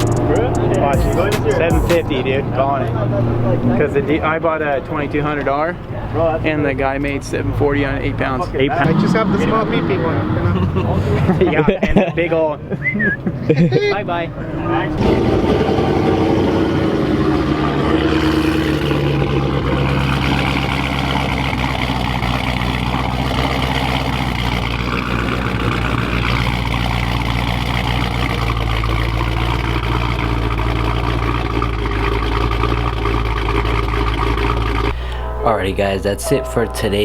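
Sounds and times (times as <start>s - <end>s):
car engine running: 0.0s - 11.7s, 14.1s - 37.0s
road and wind noise: 0.0s - 37.0s.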